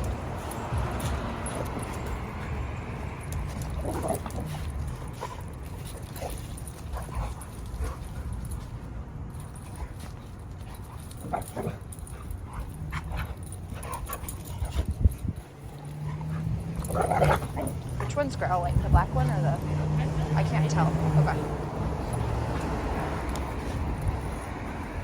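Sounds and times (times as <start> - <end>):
dogs growling: 0.0 - 8.6, 9.4 - 25.0.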